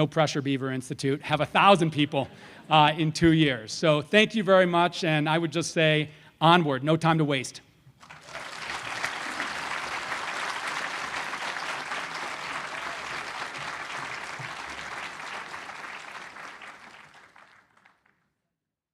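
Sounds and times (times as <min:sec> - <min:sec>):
audience applauding: 0:08.0 - 0:18.2.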